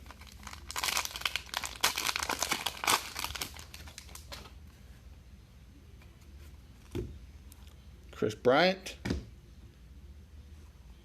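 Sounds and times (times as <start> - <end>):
wrapper tearing and crinkling: 0.0 - 4.4.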